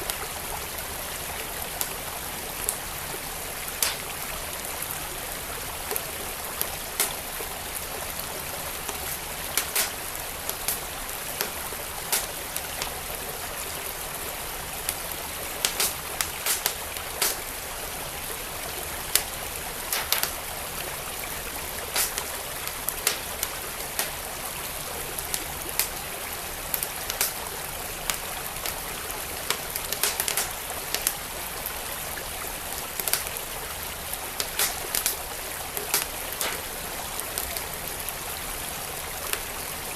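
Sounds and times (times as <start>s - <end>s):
flowing stream: 0.0s - 39.9s
wood fire crackling: 1.6s - 31.9s, 32.6s - 37.9s
sharp fire pops: 3.8s - 4.2s, 7.0s - 7.3s, 8.8s - 13.0s, 14.9s - 17.6s, 19.0s - 20.4s, 21.8s - 22.3s, 22.9s - 24.2s, 25.3s - 26.0s, 26.7s - 27.5s, 29.5s - 31.2s, 33.0s - 33.4s, 34.3s - 36.7s.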